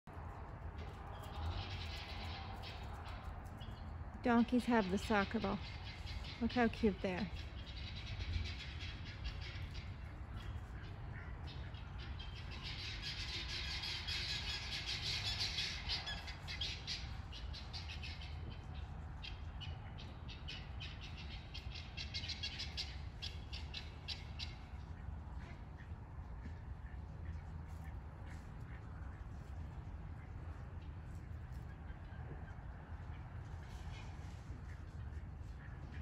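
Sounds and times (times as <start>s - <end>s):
birds chirping and squawking: 1.1s - 29.2s.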